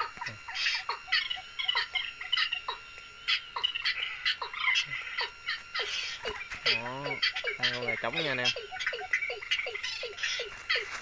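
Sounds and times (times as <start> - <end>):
birds chirping and calling: 0.0 - 11.0.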